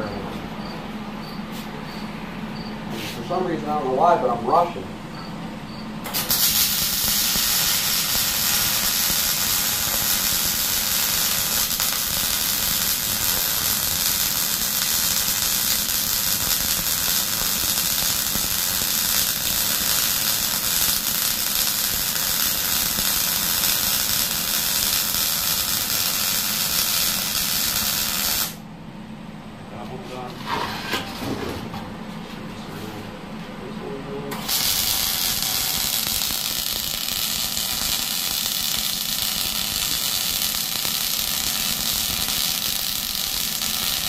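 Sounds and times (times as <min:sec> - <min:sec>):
arc welder crackling hiss: 0:06.0 - 0:28.6, 0:34.3 - 0:44.0.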